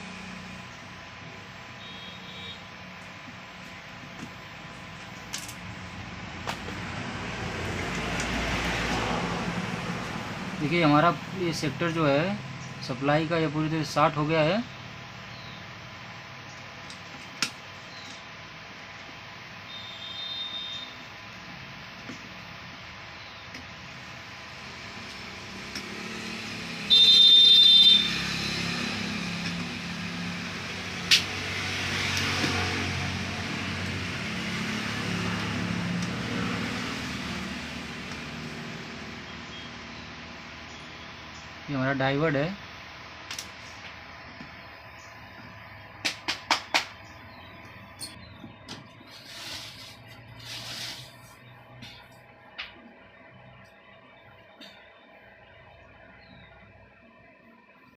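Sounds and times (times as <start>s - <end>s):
street noise hum: 0.0s - 57.9s
passing vehicle rumble: 5.7s - 13.0s, 23.9s - 27.1s, 27.7s - 41.8s.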